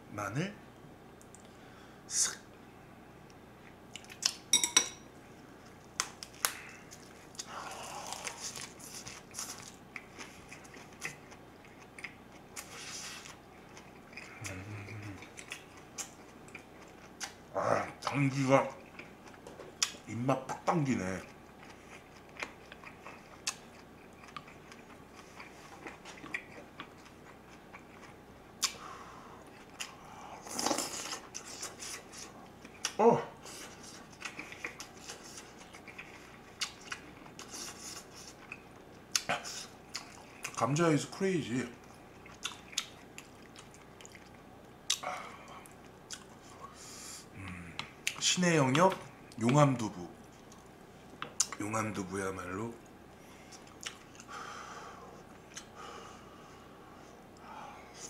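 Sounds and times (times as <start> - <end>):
chopsticks clinking against a dish: 4.5 - 5.0
crisp crunchy chewing: 5.6 - 17.4
wet chewing: 6.0 - 20.0, 21.2 - 28.8, 29.5 - 40.6, 41.8 - 46.7, 53.5 - 54.3.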